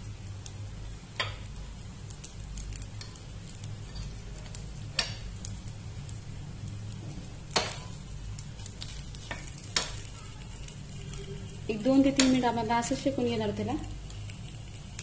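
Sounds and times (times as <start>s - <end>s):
food frying with faint sizzle: 0.0s - 15.0s
metal spoon clicking on pan: 9.2s - 10.1s, 12.1s - 12.5s.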